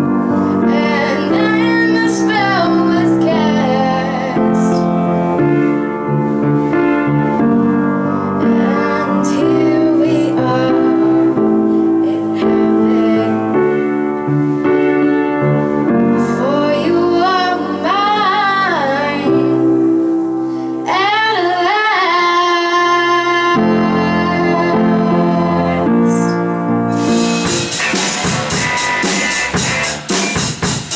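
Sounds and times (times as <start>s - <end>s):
piano chords: 0.0s - 30.9s
woman singing: 0.5s - 5.0s, 8.2s - 14.0s, 16.2s - 19.8s, 20.8s - 26.4s.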